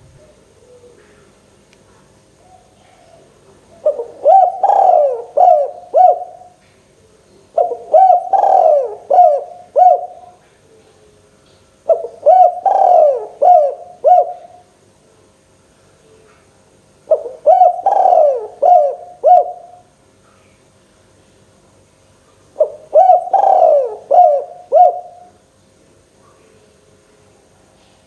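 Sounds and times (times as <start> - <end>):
dove cooing: 0.0 - 1.4, 2.3 - 11.2, 11.9 - 14.7, 17.1 - 19.8, 22.6 - 25.4.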